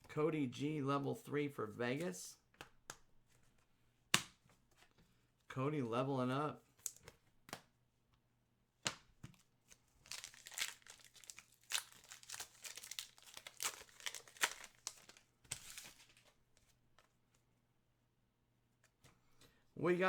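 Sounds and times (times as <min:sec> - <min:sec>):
wrapper crinkling and rustling: 0:09.8 - 0:16.4.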